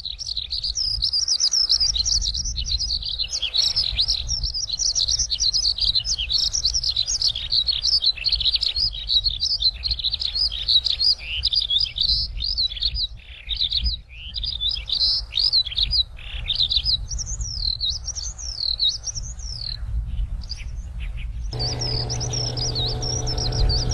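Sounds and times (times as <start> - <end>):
low steady hum: 21.6 - 23.9.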